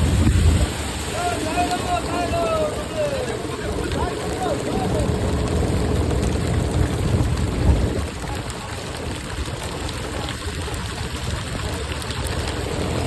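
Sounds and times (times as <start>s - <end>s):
low rumbling aboard boat: 0.0s - 13.0s.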